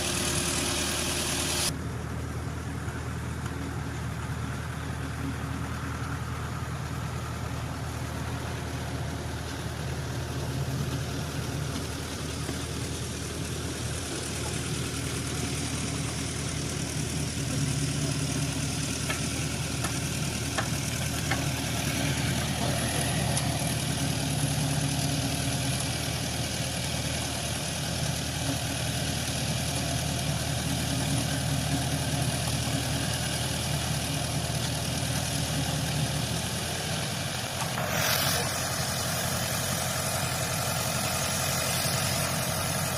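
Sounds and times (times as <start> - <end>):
engine idling: 0.0 - 42.9.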